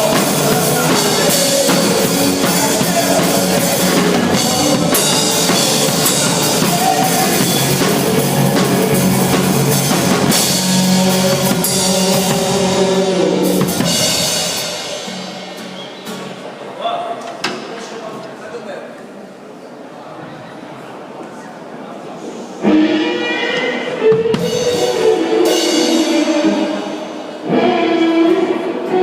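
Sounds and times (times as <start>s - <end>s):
loud rock music with drums: 0.0s - 16.0s, 22.7s - 28.0s.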